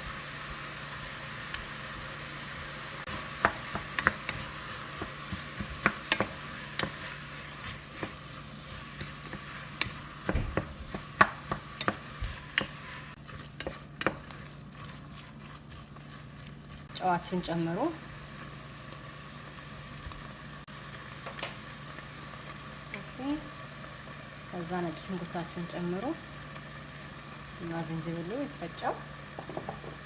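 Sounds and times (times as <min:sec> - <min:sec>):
sauce sizzling in a frying pan: 0:00.0 - 0:30.0
utensil scraping a pan: 0:03.0 - 0:16.9.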